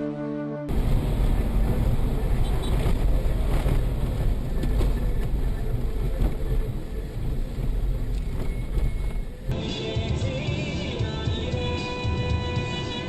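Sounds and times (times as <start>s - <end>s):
car interior road rumble: 0.7s - 9.6s.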